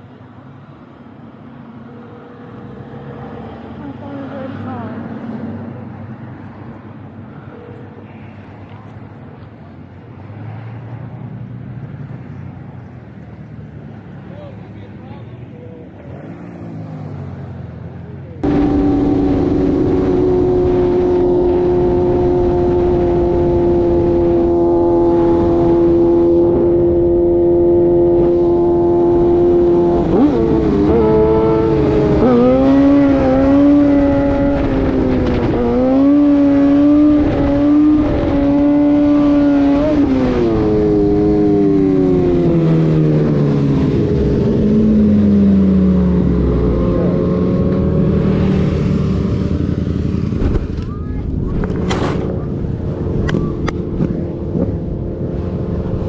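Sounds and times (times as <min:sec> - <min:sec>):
vehicle engine revving: 0:15.9 - 0:56.0.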